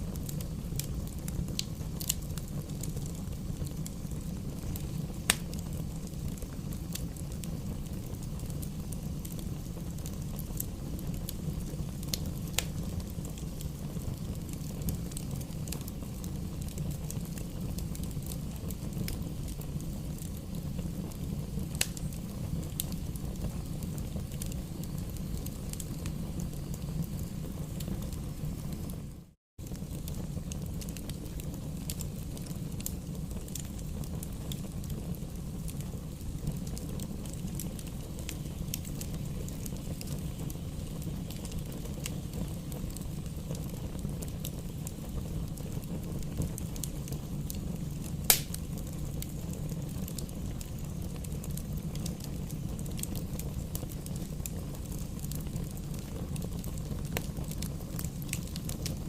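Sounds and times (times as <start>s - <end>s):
bonfire burning and crackling: 0.0s - 59.0s
sharp loud pop from fire: 48.3s - 48.6s.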